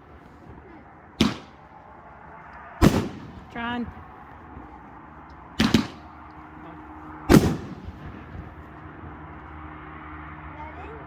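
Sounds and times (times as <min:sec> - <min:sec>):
firework booms: 0:01.2 - 0:01.6, 0:02.8 - 0:03.8, 0:05.6 - 0:06.1, 0:07.3 - 0:08.6.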